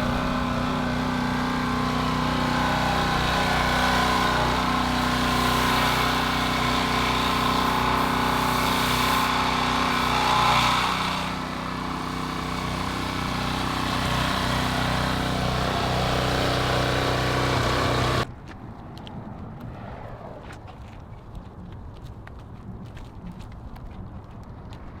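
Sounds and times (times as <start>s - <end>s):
engine running steadily: 0.0s - 18.3s.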